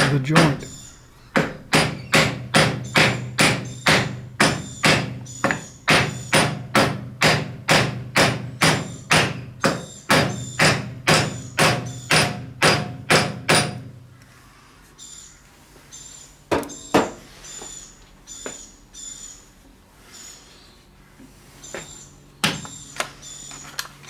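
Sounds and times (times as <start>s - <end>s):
mallet knocking on wood: 0.1s - 0.8s, 1.4s - 13.8s.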